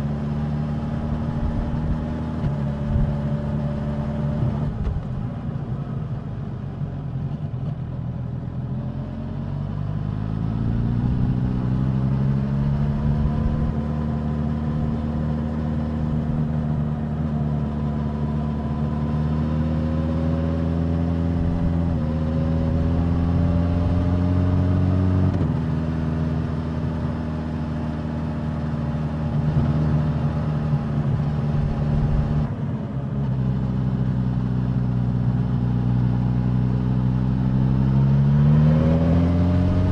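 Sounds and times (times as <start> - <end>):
motorcycle engine revving: 37.0 - 39.9.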